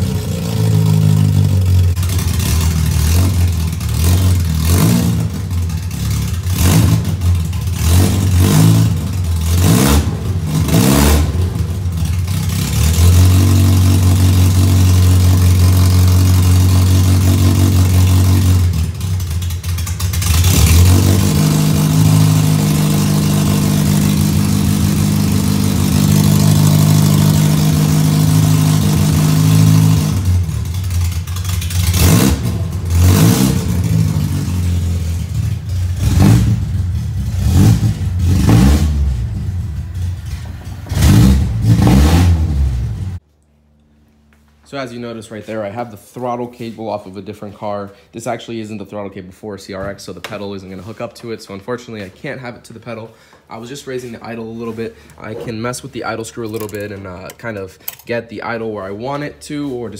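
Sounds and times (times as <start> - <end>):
car engine revving and idling: 0.0 - 43.2.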